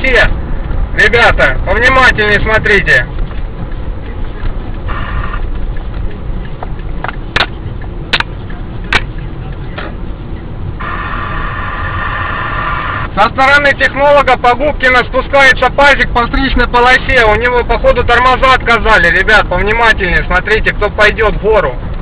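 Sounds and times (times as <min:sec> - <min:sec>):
road noise: 0:00.0 - 0:22.0
vehicle engine rumble: 0:00.0 - 0:22.0
steady buzzing tone: 0:04.9 - 0:05.5, 0:10.8 - 0:13.2
sharp clicks: 0:05.3 - 0:09.2.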